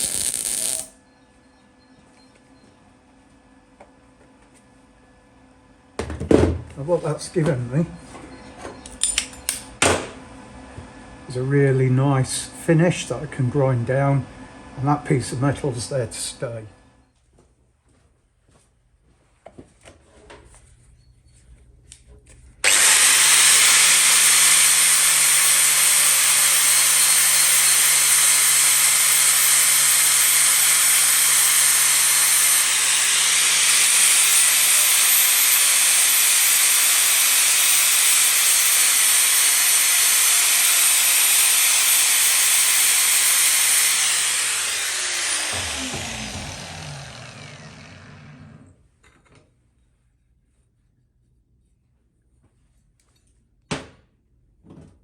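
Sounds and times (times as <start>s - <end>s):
angle grinder grinding steel: 0.0s - 0.9s, 22.6s - 48.8s.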